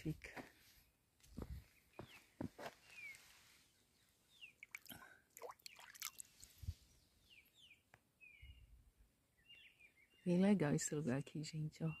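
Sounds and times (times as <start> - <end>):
footsteps on bare rock: 1.2 - 3.2
faint bird chirps: 1.6 - 10.9.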